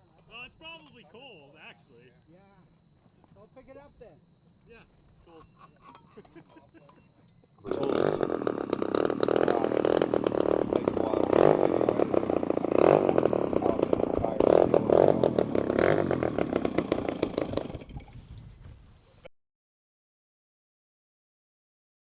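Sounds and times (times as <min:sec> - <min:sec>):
model plane engine buzzing: 0:07.7 - 0:19.1.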